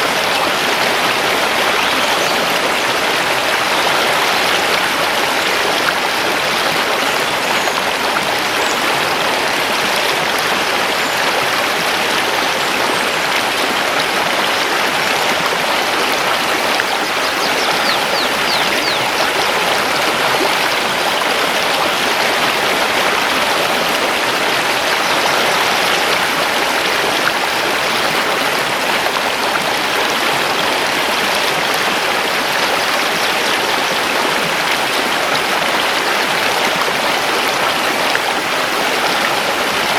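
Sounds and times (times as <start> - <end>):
river rushing over stones: 0.0 - 39.9
faint high bird calls: 16.5 - 19.6.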